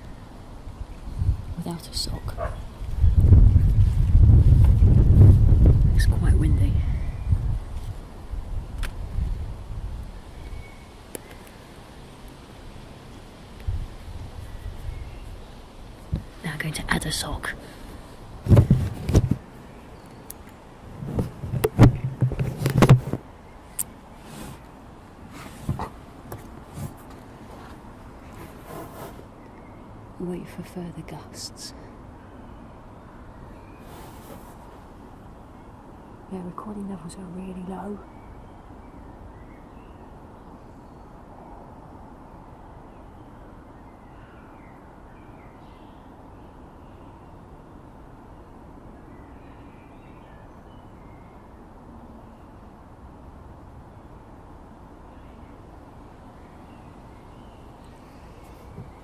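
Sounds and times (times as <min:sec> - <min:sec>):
low wind rumble: 0:00.0 - 0:59.0
rubbing and knocks on microphone: 0:03.2 - 0:06.0, 0:18.4 - 0:19.5, 0:20.9 - 0:23.3, 0:24.2 - 0:24.7, 0:25.3 - 0:29.3
faint bird chirps: 0:10.3 - 0:11.7.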